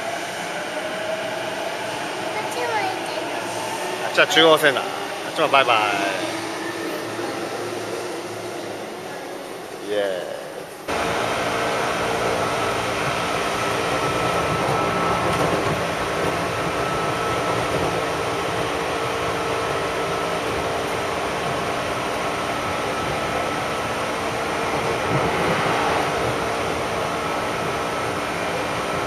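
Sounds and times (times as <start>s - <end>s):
train carriage rumble: 0.0s - 29.0s.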